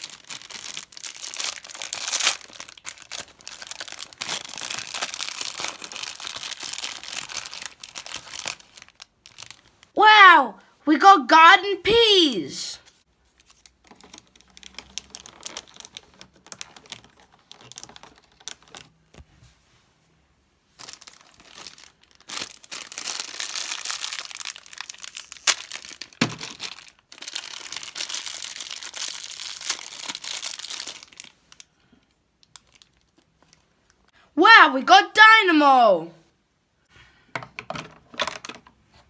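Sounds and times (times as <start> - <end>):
packet crinkling: 0.0 - 9.8, 13.4 - 18.9, 20.8 - 31.7, 32.4 - 33.2.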